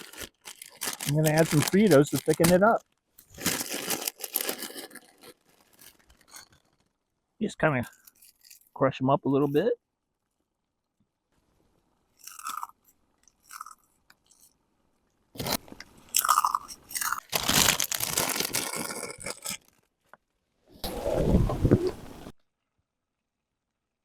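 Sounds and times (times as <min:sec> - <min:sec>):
corn chips being crushed: 0:00.0 - 0:06.8, 0:12.2 - 0:12.8, 0:13.4 - 0:13.8, 0:15.4 - 0:19.8.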